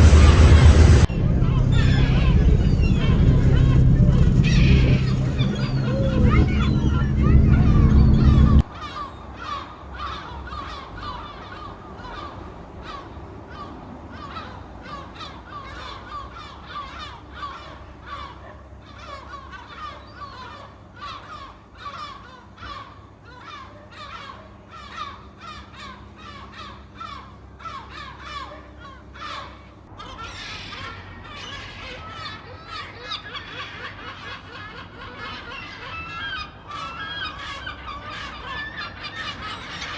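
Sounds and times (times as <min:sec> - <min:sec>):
seagulls calling: 0:00.0 - 0:13.1, 0:14.2 - 0:39.9.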